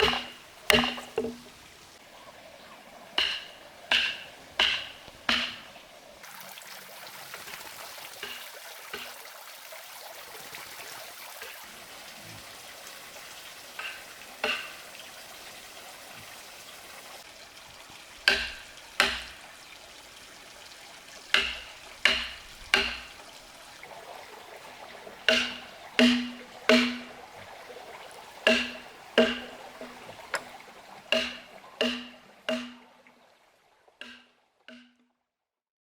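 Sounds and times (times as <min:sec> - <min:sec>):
hard object knocking on wood: 0:00.0 - 0:01.5.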